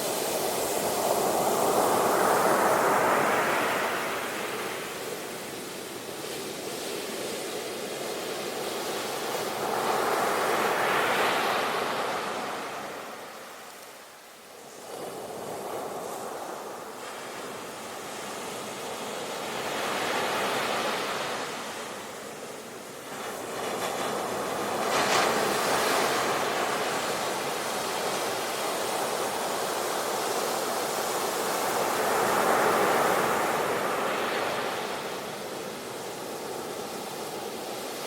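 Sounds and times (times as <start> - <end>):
sea waves breaking on shore: 14.7 - 38.0.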